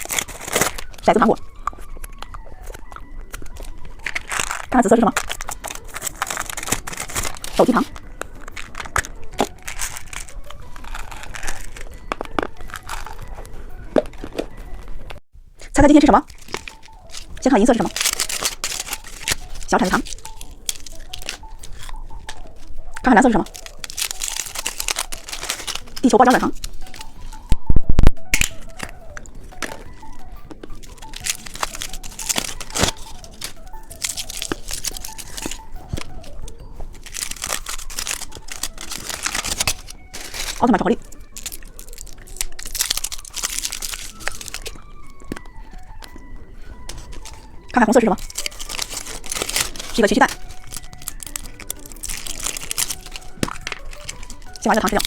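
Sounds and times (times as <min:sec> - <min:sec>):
plastic packaging crinkling: 0:00.0 - 0:27.5, 0:28.3 - 0:55.0
sharp clicks and snaps: 0:15.6 - 0:30.1.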